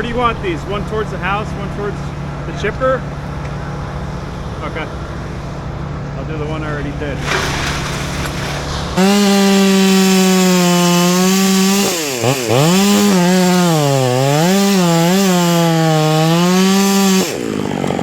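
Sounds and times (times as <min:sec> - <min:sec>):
chainsaw cutting wood: 0:07.2 - 0:18.0.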